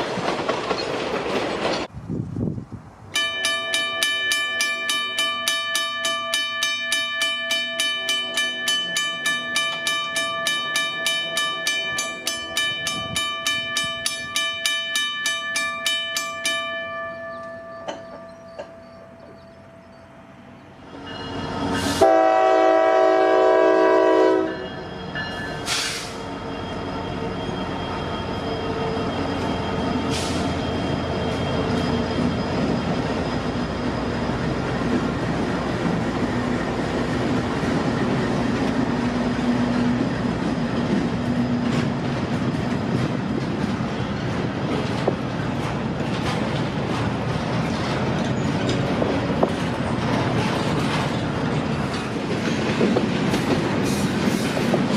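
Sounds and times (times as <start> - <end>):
train rumble and wheel clatter: 0.0 - 54.9
locomotive horn blast: 21.8 - 24.8.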